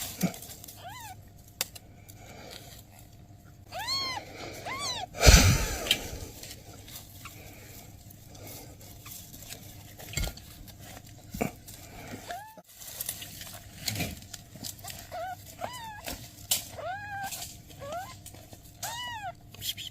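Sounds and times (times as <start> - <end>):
kitten mewing: 0.2 - 1.2, 3.7 - 6.4, 14.9 - 18.2, 18.8 - 19.8
loud thump: 5.2 - 6.2.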